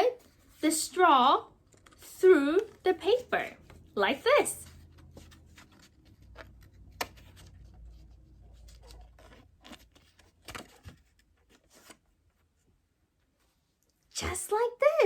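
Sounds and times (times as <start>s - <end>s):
paper and plastic rustling: 4.6s - 12.1s.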